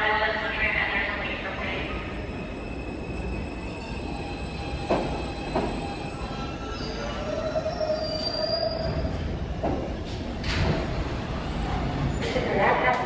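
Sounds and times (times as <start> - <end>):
subway car rumbling on rails: 0.0 - 13.0
metal wheels squealing on rails: 2.8 - 9.3.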